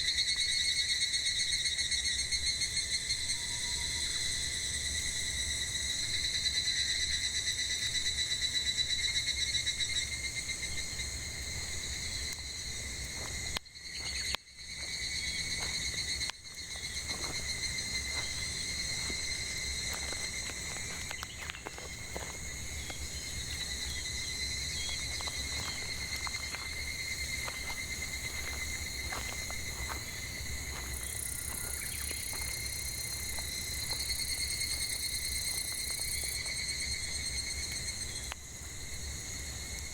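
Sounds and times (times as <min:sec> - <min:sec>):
cicadas buzzing: 0:00.0 - 0:39.9
firewood crackling: 0:16.2 - 0:34.0.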